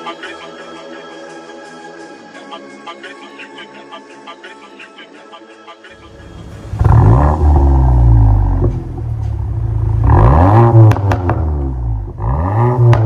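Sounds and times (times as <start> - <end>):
car engine revving: 6.0 - 13.0
exhaust pops: 6.8 - 13.0.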